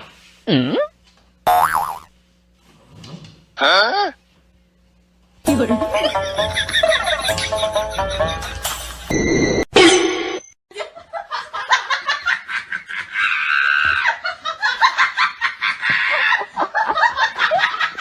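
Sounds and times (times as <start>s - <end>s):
person laughing hard: 12.1s - 18.0s.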